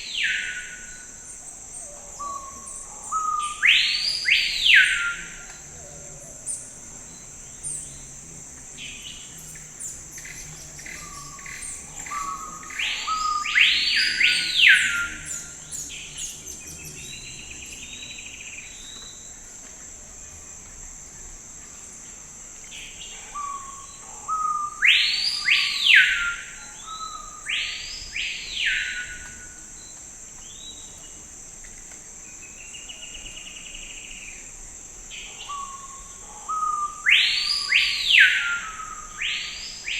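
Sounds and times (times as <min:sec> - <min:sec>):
high-pitched insect drone: 0:00.0 - 0:31.4
songbird singing whistled notes: 0:02.2 - 0:05.6, 0:08.8 - 0:19.4, 0:23.4 - 0:31.0, 0:35.4 - 0:39.9.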